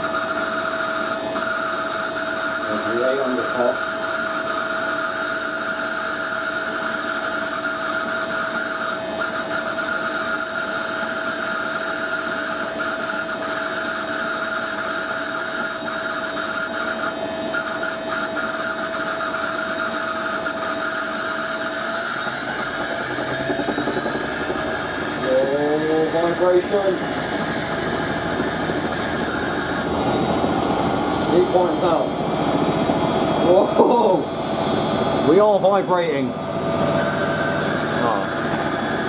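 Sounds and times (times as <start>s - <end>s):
motor bearings screeching: 0.0s - 39.0s
washing machine spinning: 19.0s - 39.0s.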